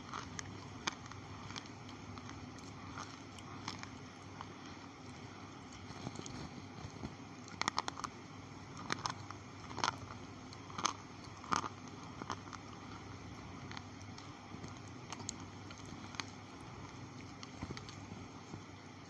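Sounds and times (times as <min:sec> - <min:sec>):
slate pencils crunched by teeth: 0:08.8 - 0:13.0.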